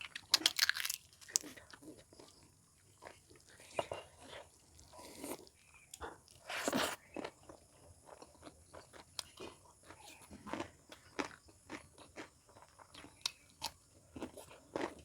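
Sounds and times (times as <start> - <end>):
crunchy food chewing: 0.0 - 15.0.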